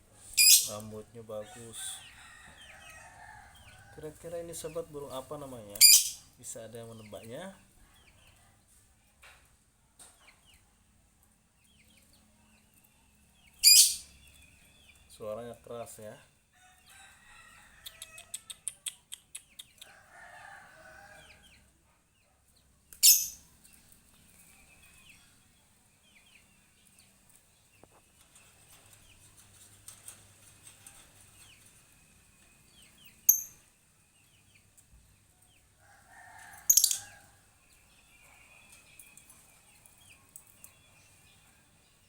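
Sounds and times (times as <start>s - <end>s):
bird chirping: 0.3s - 0.8s, 5.7s - 6.3s, 13.4s - 15.1s, 22.9s - 25.4s, 36.7s - 37.2s
bird clicking: 36.7s - 37.0s.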